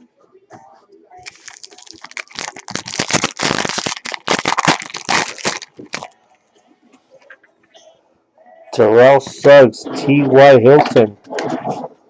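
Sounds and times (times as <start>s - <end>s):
foil wrapper crinkling: 1.2s - 6.2s.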